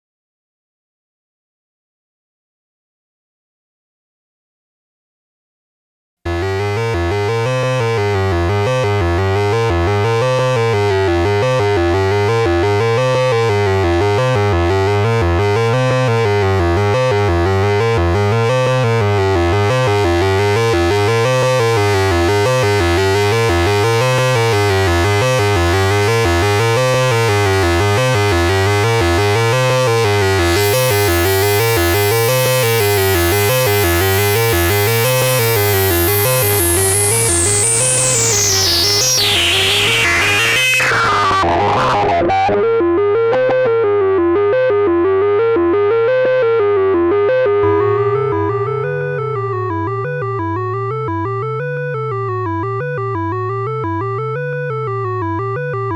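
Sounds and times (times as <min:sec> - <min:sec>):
low synth bass note: 0:06.3 - 0:39.2, 0:46.9 - 0:55.9
analog synthesizer sequence: 0:06.3 - 0:42.7, 0:45.4 - 0:55.9.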